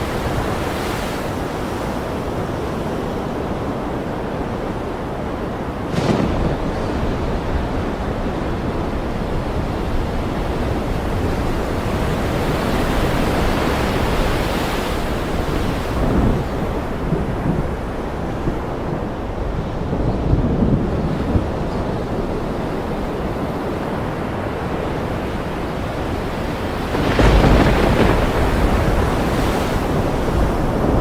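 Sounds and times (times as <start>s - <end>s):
ocean surf breaking: 0.0s - 31.0s
thunder crack: 5.8s - 8.3s, 26.8s - 31.0s
low thunder rumbles: 5.8s - 10.8s, 26.6s - 31.0s.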